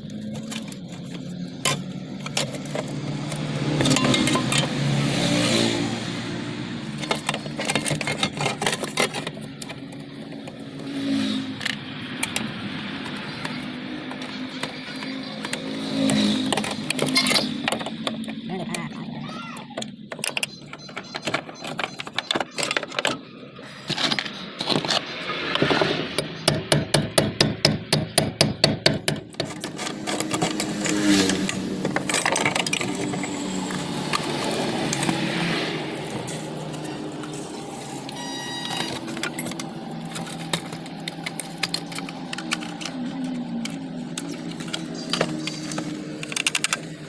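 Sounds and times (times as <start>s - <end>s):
metal tool clicks and knocks: 0.3s - 4.8s.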